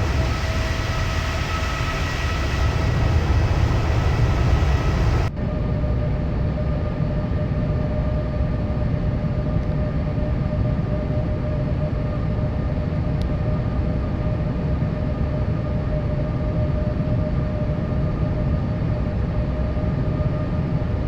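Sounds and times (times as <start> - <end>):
airliner cabin rumble: 0.0 - 7.2.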